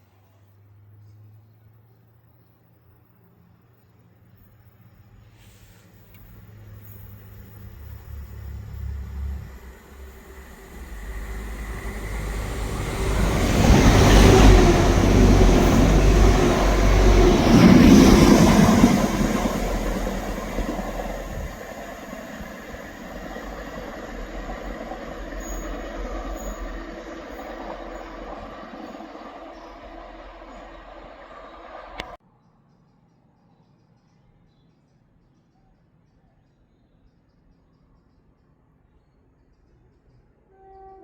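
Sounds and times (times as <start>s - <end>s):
train passing: 5.8s - 32.2s.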